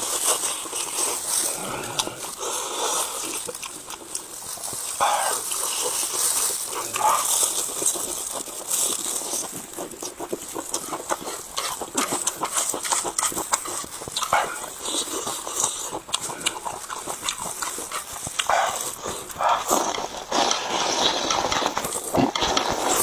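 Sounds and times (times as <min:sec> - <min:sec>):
person chewing food: 0:00.0 - 0:23.0
lip smacking clicks: 0:09.8 - 0:23.0.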